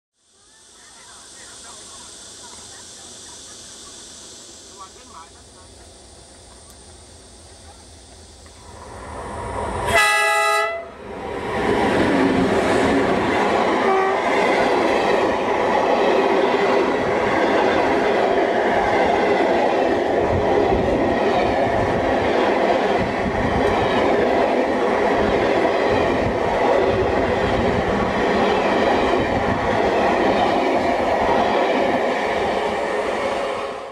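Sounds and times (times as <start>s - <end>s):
train coaches rumbling past: 0.6s - 33.9s
locomotive horn blast: 9.9s - 11.0s, 13.8s - 14.2s.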